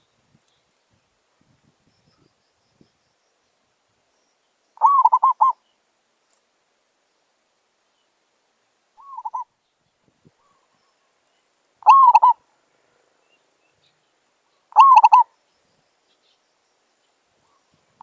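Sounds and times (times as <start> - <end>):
dove cooing: 4.8 - 5.6, 9.0 - 9.5, 11.8 - 12.4, 14.7 - 15.3.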